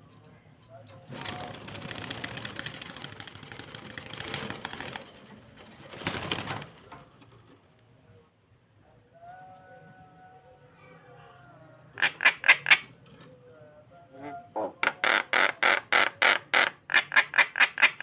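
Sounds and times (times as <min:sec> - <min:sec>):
starling chattering calls: 0:12.0 - 0:12.9, 0:14.6 - 0:18.0.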